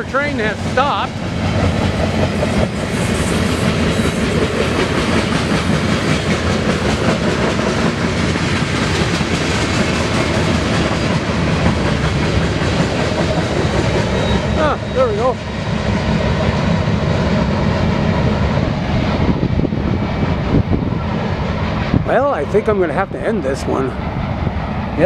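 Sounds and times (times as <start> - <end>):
steel wheels clattering on rails: 0.0 - 15.4
freight train rumbling past: 0.0 - 25.0.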